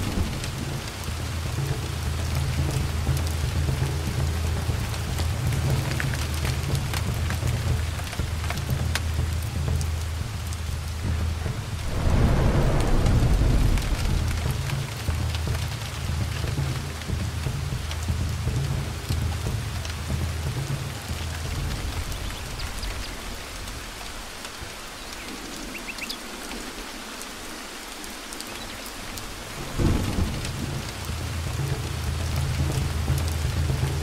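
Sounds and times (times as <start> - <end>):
thunder rumbling: 0.0 - 19.1, 29.2 - 34.0
heavy rain falling: 0.0 - 34.0
loud thunderclap: 11.6 - 16.4, 29.6 - 31.2.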